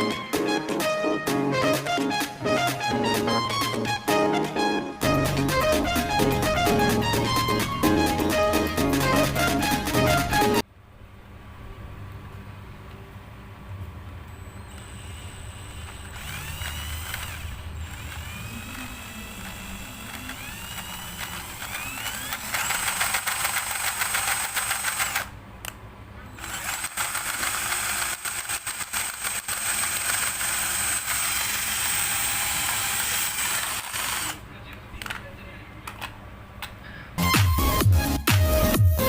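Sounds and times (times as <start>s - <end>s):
small electric motor whining: 14.3s - 25.3s, 26.3s - 34.4s.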